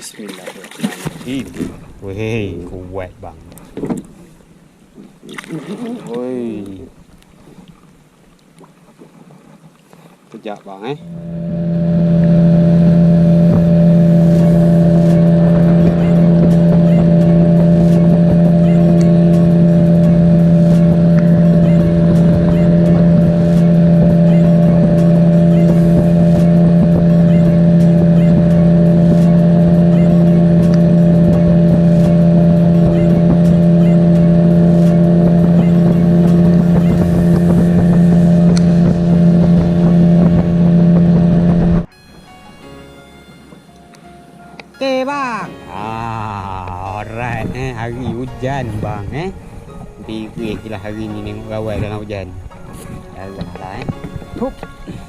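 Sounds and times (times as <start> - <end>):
outboard engine humming: 0.0 - 55.0.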